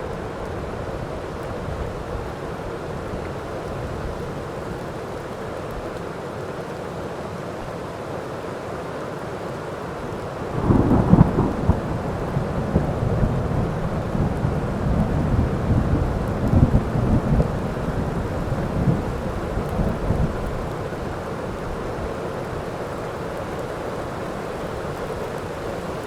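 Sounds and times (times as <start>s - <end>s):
rain falling: 0.0s - 26.0s
thunderclap rumbling: 10.6s - 20.8s.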